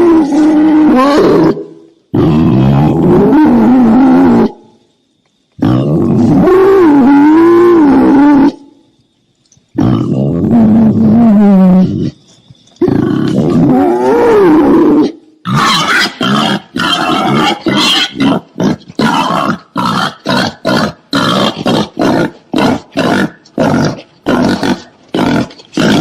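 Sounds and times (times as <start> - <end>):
wild boar calling: 12.8 - 26.0.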